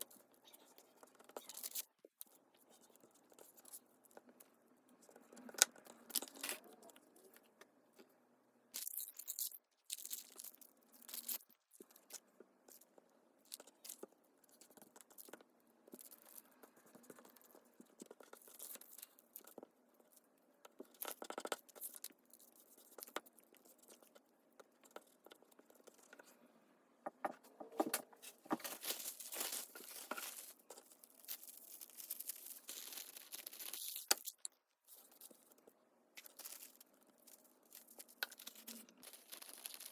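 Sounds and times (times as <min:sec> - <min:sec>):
paper tearing and crinkling: 0:28.6 - 0:34.2, 0:37.8 - 0:39.9.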